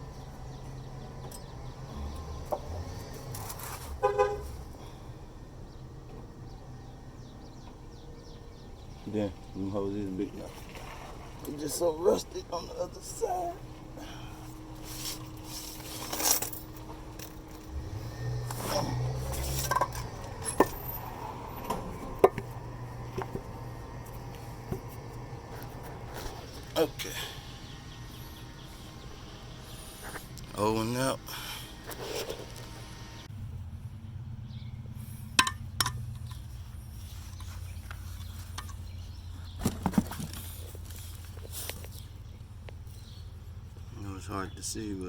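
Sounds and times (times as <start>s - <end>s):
low hum: 12.7s - 41.3s
metal tools clinking: 14.4s - 22.4s.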